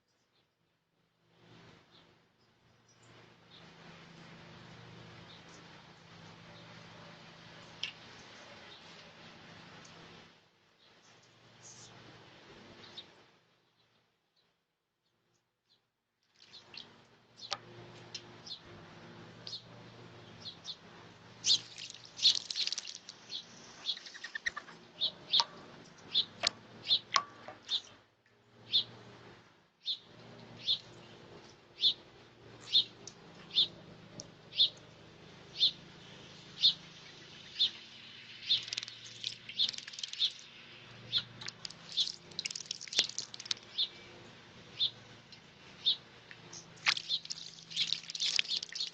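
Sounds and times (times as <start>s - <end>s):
bird wings splashing water: 21.4s - 23.4s, 38.4s - 40.6s, 41.4s - 43.8s, 46.8s - 48.9s
bird chirping: 21.4s - 28.0s, 28.6s - 28.9s, 29.8s - 31.2s, 31.8s - 32.0s, 32.6s - 33.8s, 34.5s - 34.8s, 35.5s - 48.9s.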